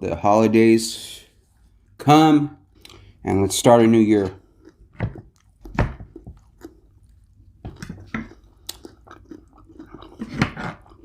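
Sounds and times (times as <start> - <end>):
person chewing food: 2.7 - 3.2, 4.2 - 11.0
mouth clicks and smacks: 7.7 - 11.0.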